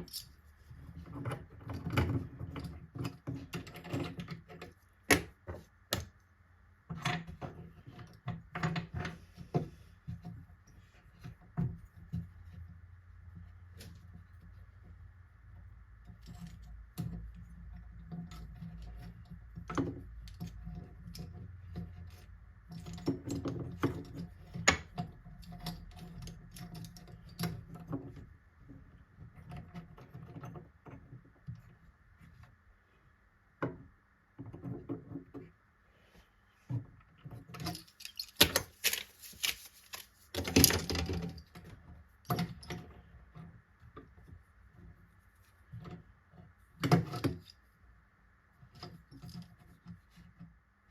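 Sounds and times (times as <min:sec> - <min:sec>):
clicks and knocks of hardware: 0:00.0 - 0:00.4, 0:37.3 - 0:43.0
scraping with sharp knocks: 0:34.4 - 0:47.6.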